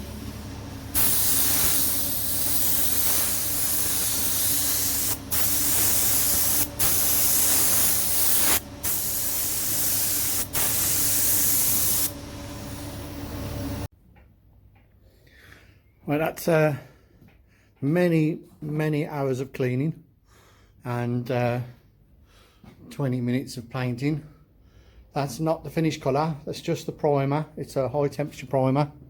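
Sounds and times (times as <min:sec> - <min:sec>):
steady low hum: 0:00.0 - 0:13.9
spray can hissing: 0:00.9 - 0:12.2.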